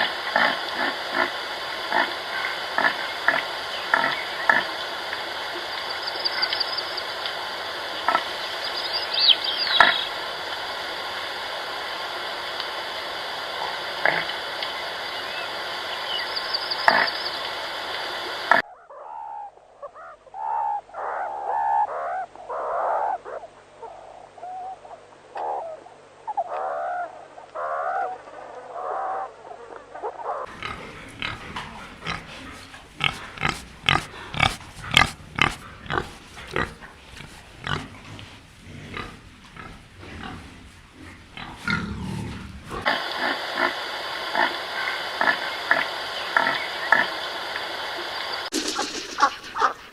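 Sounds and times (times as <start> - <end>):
pigs grunting and snorting: 0.0 - 8.7, 13.6 - 14.5, 16.8 - 17.2, 30.5 - 47.2
pigs squealing: 0.0 - 10.5, 13.6 - 17.4, 30.0 - 47.2, 48.5 - 49.9.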